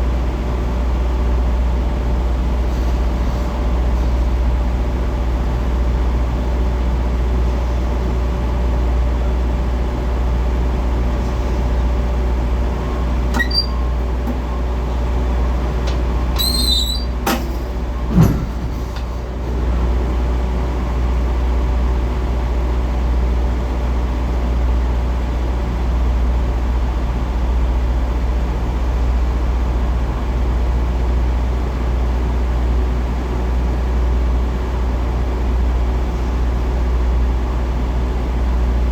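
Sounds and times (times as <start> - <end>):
diesel truck engine running: 0.0 - 38.9
high squeal: 13.3 - 13.9, 16.3 - 17.4.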